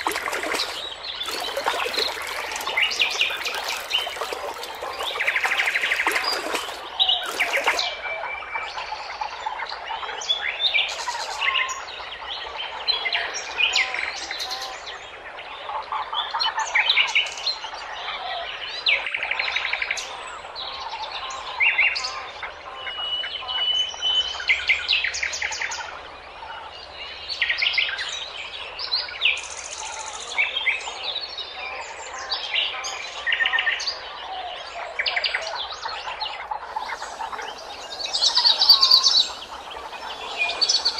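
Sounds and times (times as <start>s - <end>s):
birds chirping: 0.0s - 7.8s, 36.7s - 40.9s.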